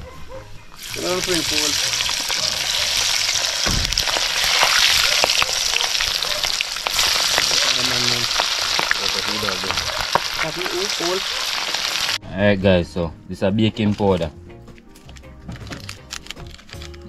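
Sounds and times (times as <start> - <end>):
food deep-frying in oil: 0.8 - 12.2
low thump: 3.6 - 4.2.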